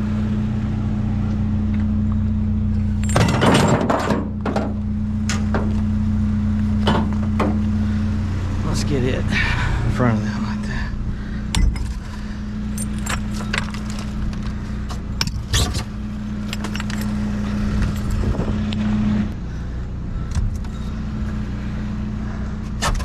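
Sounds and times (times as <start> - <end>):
vehicle engine idling: 0.0 - 23.0
scrap steel clinking: 3.0 - 4.4, 11.6 - 14.6, 15.2 - 18.2.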